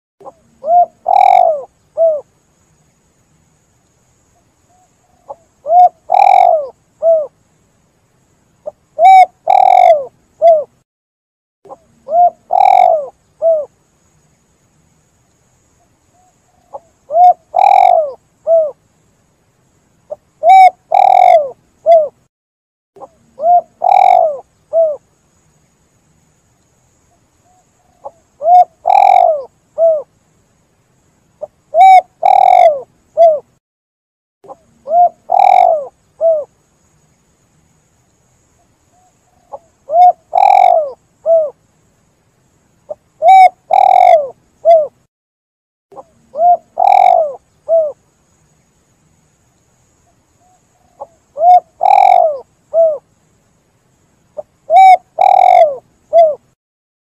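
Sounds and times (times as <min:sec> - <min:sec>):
dove cooing: 0:00.2 - 0:02.3, 0:04.7 - 0:07.3, 0:08.6 - 0:10.8, 0:11.7 - 0:13.7, 0:16.2 - 0:18.8, 0:20.4 - 0:22.2, 0:23.0 - 0:25.0, 0:27.5 - 0:30.1, 0:31.4 - 0:33.5, 0:34.5 - 0:36.5, 0:39.0 - 0:41.6, 0:42.9 - 0:45.0, 0:46.0 - 0:48.0, 0:50.4 - 0:53.0, 0:54.4 - 0:56.6.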